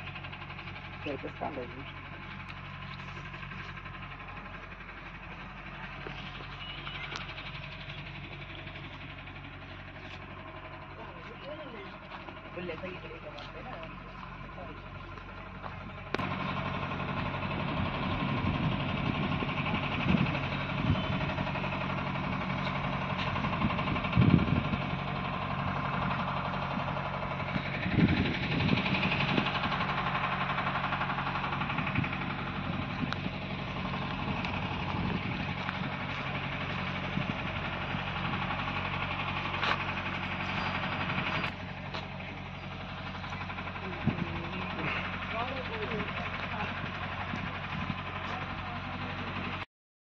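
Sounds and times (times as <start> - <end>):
diesel tractor engine running: 0.0 - 49.7.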